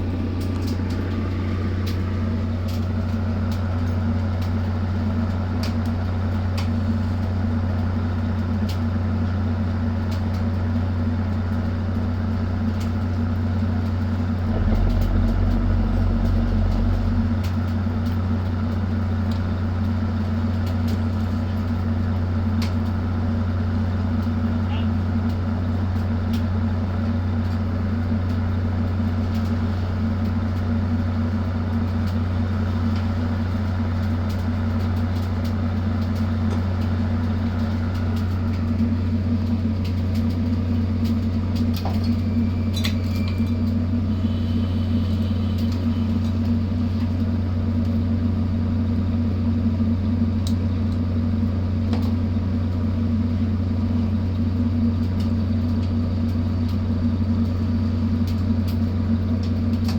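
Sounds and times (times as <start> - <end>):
ship engine low drone: 0.0 - 59.9.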